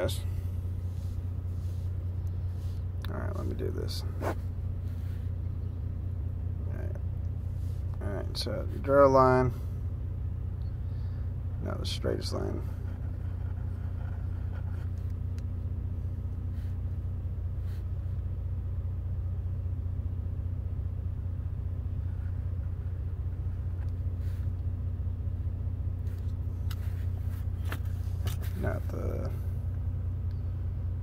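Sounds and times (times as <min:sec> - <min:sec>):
pen scratching on paper: 0:12.7 - 0:15.0.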